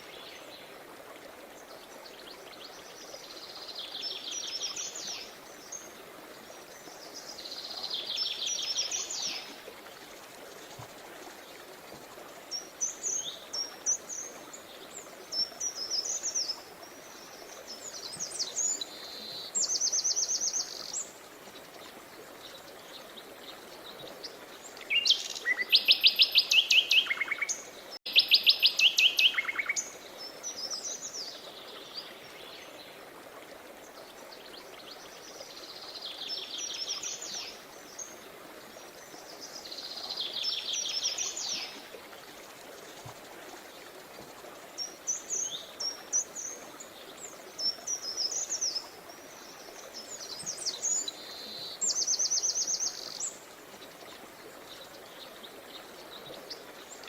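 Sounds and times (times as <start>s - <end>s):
flowing stream water: 0.0s - 57.0s
songbirds trilling and chirping: 33.8s - 57.0s.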